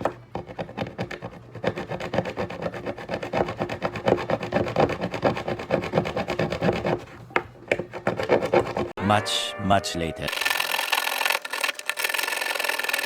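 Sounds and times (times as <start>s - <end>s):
serrated knife sawing pipe: 10.3s - 13.0s.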